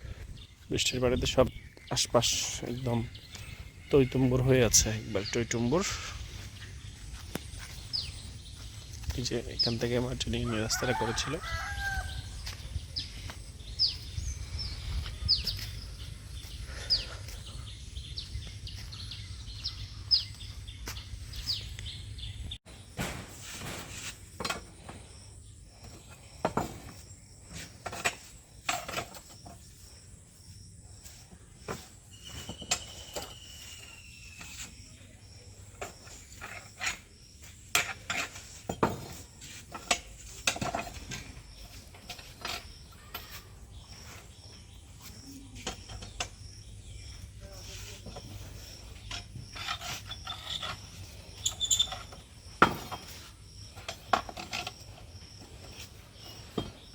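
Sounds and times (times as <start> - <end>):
high falling chirp: 29.7 - 36.4.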